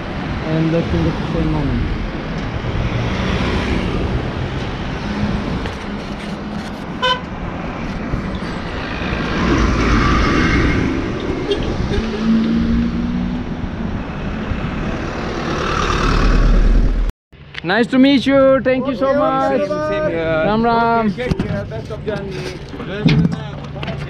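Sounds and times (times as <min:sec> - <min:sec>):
road traffic passing: 0:00.0 - 0:24.0
vehicle passing close by: 0:00.2 - 0:05.7, 0:07.5 - 0:17.1
car horn beep: 0:07.0 - 0:07.3.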